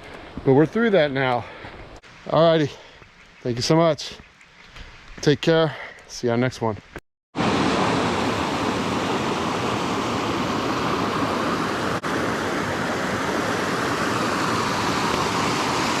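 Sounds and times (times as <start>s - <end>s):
waterfall rushing: 7.4s - 16.0s.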